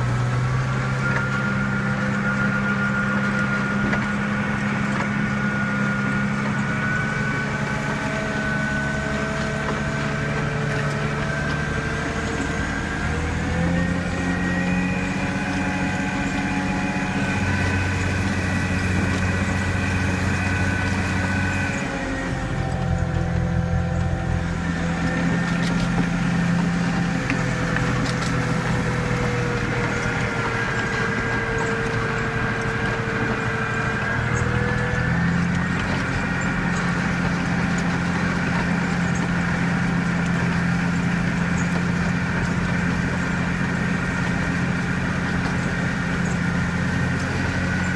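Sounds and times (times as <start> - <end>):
diesel engine running: 0.0 - 47.9
steady whine: 0.0 - 47.9.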